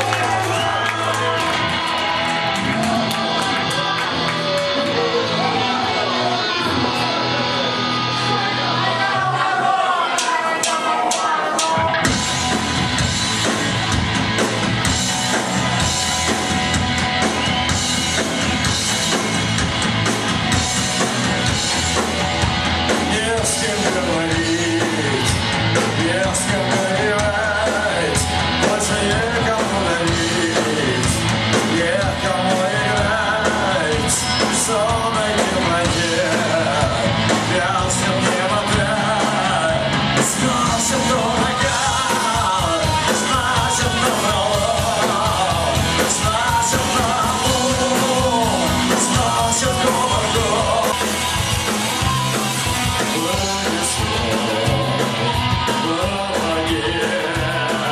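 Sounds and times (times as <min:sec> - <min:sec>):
punk rock band playing: 0:00.0 - 0:57.9
person singing and shouting: 0:22.0 - 0:57.9.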